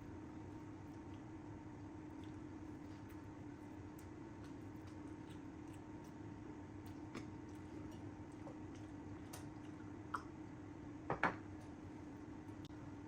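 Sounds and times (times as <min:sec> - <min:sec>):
steady low hum: 0:00.0 - 0:13.0
faint chewing: 0:00.5 - 0:10.4.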